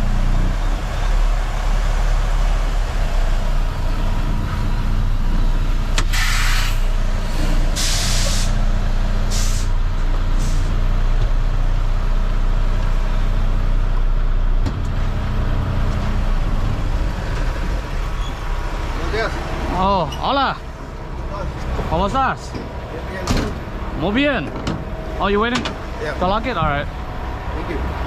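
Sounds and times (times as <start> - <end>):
diesel truck engine idling: 0.0 - 28.0
air brake hisses: 6.0 - 8.6, 9.3 - 9.8, 10.4 - 10.7.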